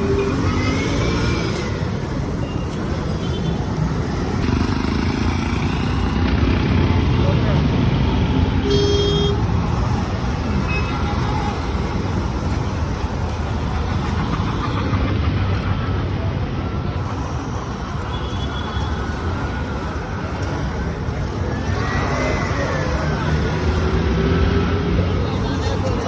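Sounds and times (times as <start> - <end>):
road traffic: 0.0 - 26.0
faint voices: 19.4 - 26.0.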